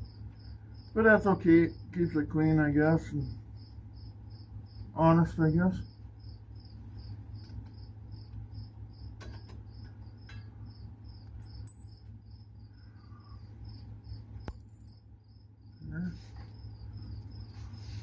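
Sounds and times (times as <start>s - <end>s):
cricket chirping: 0.0s - 18.0s
low steady hum: 0.0s - 18.0s
sharp clicks: 14.4s - 14.9s.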